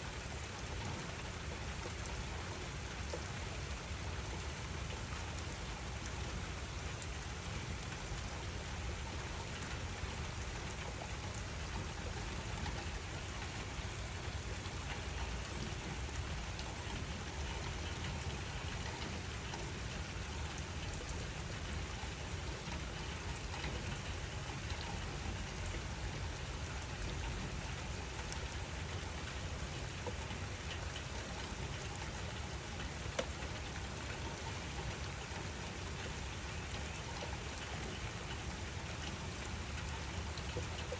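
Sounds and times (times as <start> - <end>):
raindrops ticking on surfaces: 0.0 - 40.9
steady rainfall: 0.0 - 40.9.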